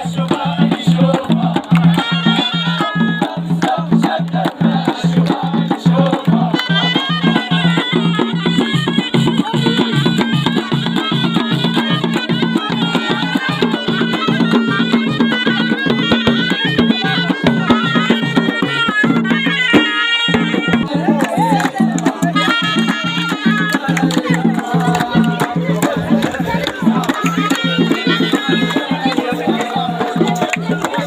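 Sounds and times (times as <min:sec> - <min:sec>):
shawm playing folk melody: 0:00.0 - 0:31.0
steady pulsing beat: 0:20.4 - 0:31.0.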